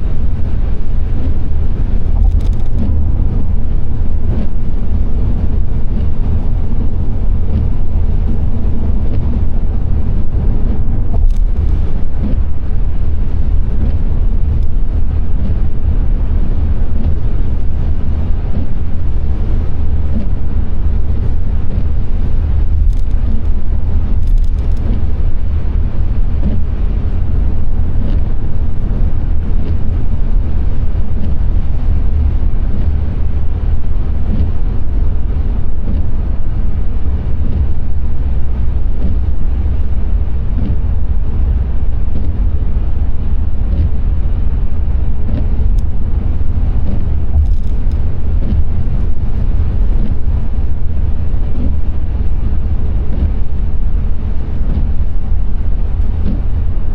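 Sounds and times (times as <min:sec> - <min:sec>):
car road and engine rumble: 0:00.0 - 0:56.9
faint ticks: 0:02.1 - 0:03.0, 0:11.1 - 0:12.4, 0:22.7 - 0:25.1, 0:46.6 - 0:50.4.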